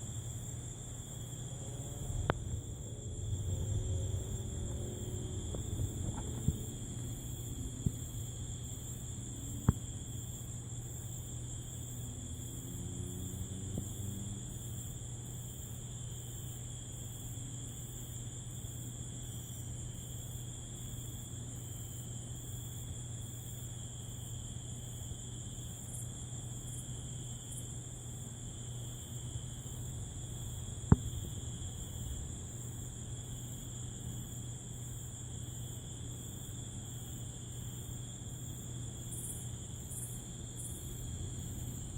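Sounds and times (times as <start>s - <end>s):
low steady hum: 0.0s - 15.2s
crickets and katydids trilling: 0.0s - 41.9s.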